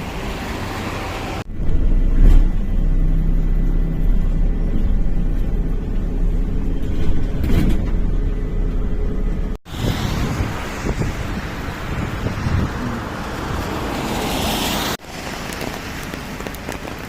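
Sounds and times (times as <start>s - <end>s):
loud low rumble: 1.5s - 13.6s.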